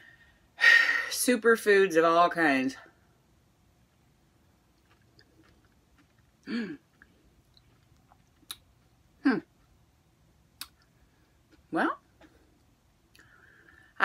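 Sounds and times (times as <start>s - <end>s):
person chewing soft fruit: 3.8s - 13.8s.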